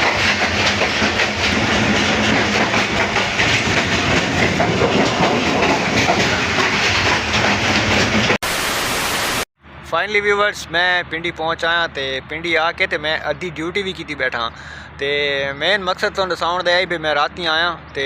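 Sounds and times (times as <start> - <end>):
train carriage rumbling and rattling: 0.0 - 8.4
wheels clattering over rail joints: 0.0 - 8.4.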